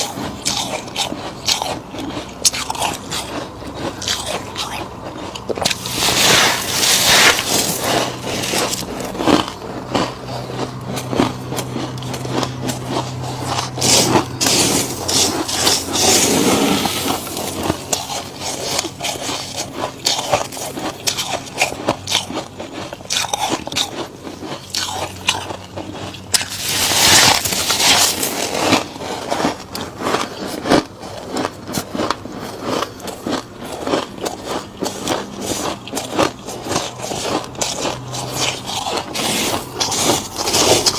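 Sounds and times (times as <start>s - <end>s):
frost crunched between teeth: 0.0s - 32.2s, 32.8s - 40.9s
frost being scraped: 4.0s - 9.5s, 11.5s - 21.7s, 26.3s - 29.6s, 34.9s - 40.9s.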